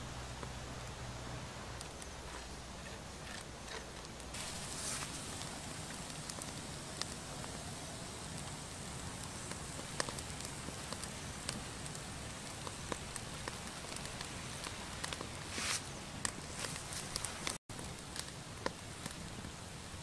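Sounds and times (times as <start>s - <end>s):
food sizzling in oil: 4.3s - 17.5s.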